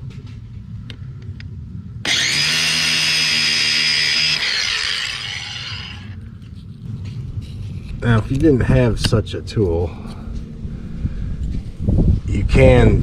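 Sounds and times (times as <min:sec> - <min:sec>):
cutting wheel whining through plastic: 0:02.0 - 0:06.2
power tool cutting wheel running: 0:02.0 - 0:06.2.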